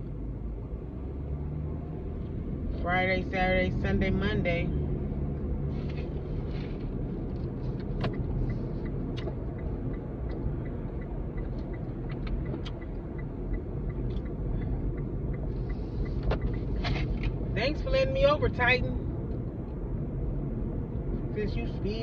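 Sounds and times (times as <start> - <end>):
car road and engine rumble: 0.0 - 22.0
turn signal clicking: 5.2 - 21.4.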